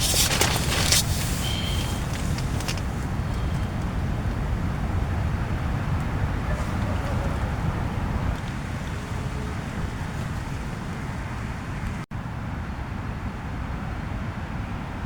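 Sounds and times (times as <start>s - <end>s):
heavy rain on a tent: 0.0s - 4.8s, 5.4s - 12.1s
wind buffeting microphone: 0.0s - 15.0s.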